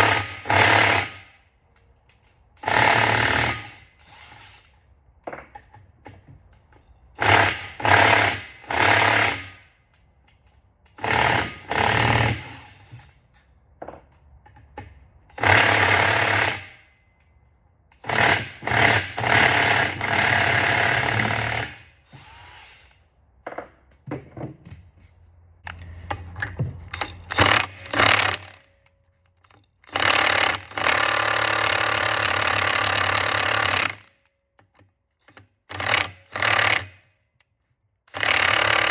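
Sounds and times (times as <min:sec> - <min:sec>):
impact wrench hammering: 0:25.7 - 0:37.1, 0:38.1 - 0:38.9.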